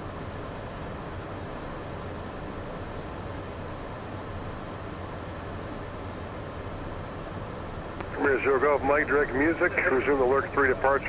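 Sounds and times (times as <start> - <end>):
jet engines droning: 0.0 - 11.0
low hum: 7.8 - 11.0.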